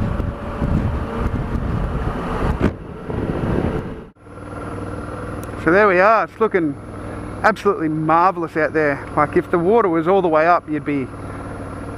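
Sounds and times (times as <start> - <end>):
wind rushing over microphone: 0.0 - 4.1
motorcycle engine running: 0.0 - 11.9.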